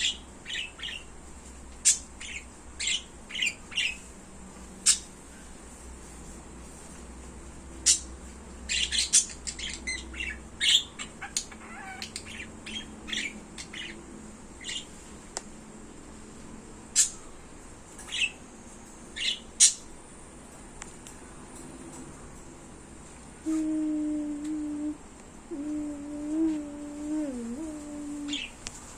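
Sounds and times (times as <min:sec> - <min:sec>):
pet birds chirping and squawking: 0:00.0 - 0:01.1, 0:01.8 - 0:04.1, 0:04.8 - 0:05.2, 0:07.8 - 0:15.0, 0:16.9 - 0:18.5, 0:19.1 - 0:20.0, 0:27.7 - 0:28.6.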